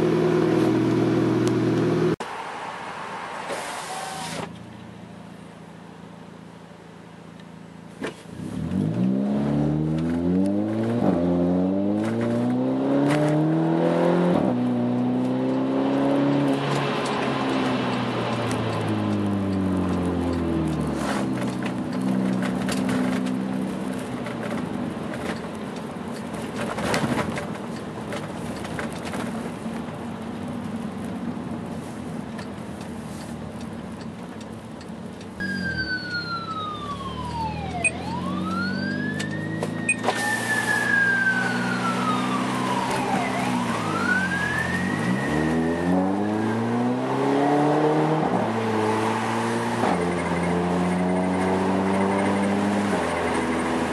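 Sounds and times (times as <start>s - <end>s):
siren wailing: 35.4s - 47.6s.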